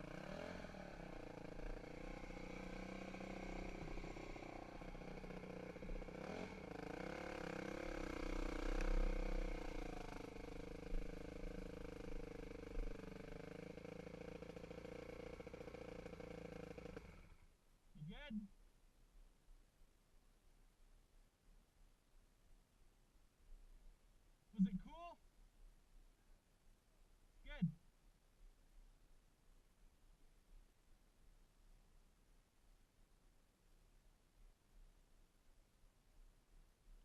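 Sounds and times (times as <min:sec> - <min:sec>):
dirt bike engine running: 0:00.0 - 0:17.4.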